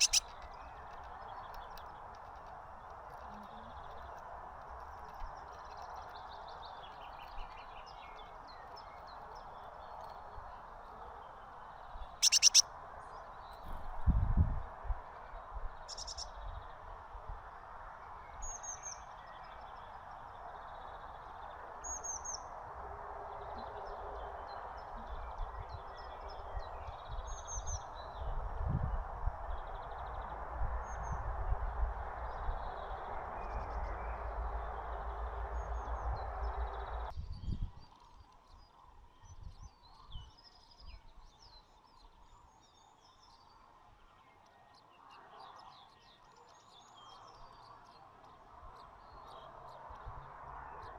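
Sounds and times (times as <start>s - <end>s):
small birds chirping: 0.0s - 10.6s, 11.9s - 12.6s, 15.9s - 16.3s
background noise with low rumble: 0.0s - 50.9s.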